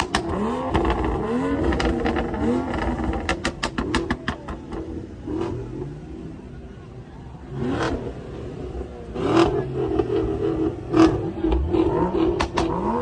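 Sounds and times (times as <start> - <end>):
car engine revving: 0.0 - 6.8, 7.4 - 13.0.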